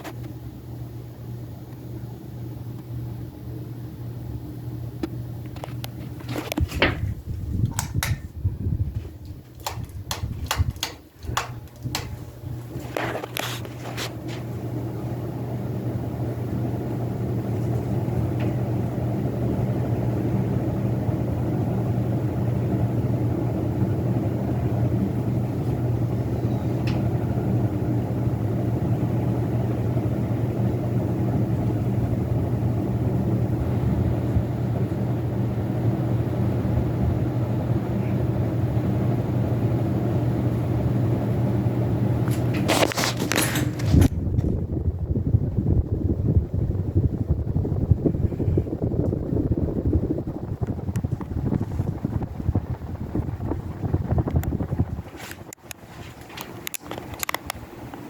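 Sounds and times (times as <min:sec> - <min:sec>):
ceiling fan motor humming: 0:00.0 - 0:58.0
sharp clicks: 0:09.6 - 0:12.2.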